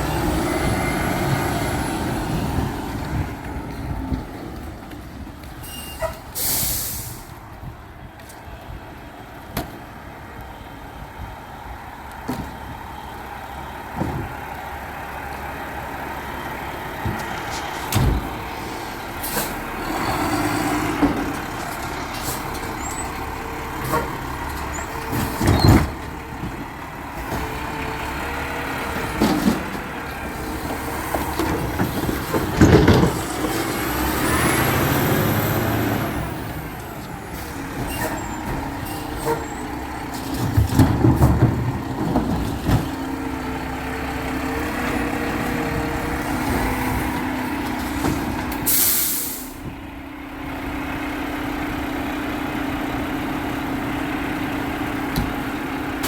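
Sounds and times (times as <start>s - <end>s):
garbage truck diesel engine: 0.0s - 56.0s
air brake hiss: 5.6s - 7.4s, 48.7s - 49.6s.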